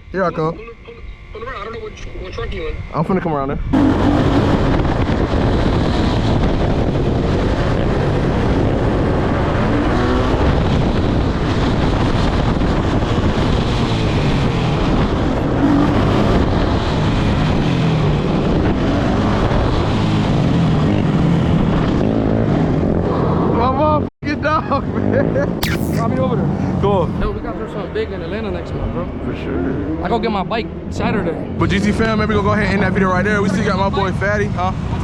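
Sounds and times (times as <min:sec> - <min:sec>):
wind buffeting microphone: 0:01.4 - 0:20.0.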